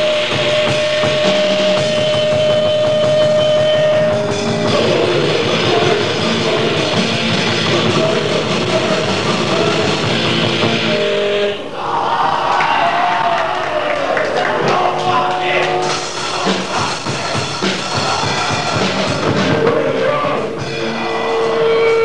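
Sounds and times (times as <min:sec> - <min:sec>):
grindcore band playing: 0:00.0 - 0:11.6, 0:14.5 - 0:22.0.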